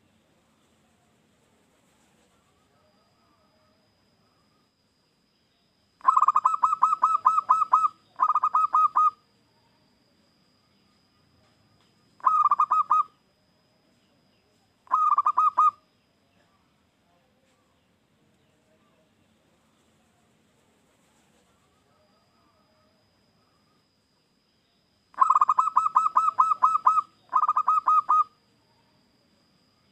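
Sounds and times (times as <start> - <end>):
dove cooing: 6.0 - 9.2, 12.2 - 13.1, 14.9 - 15.8, 25.2 - 28.4.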